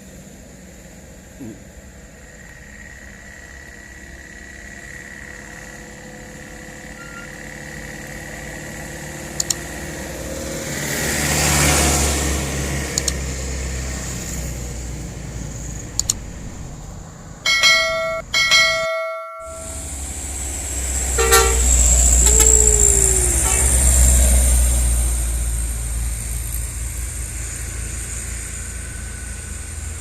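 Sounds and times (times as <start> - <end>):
truck engine running: 0.0 - 30.0
truck horn blasts: 19.4 - 19.9, 21.1 - 24.0.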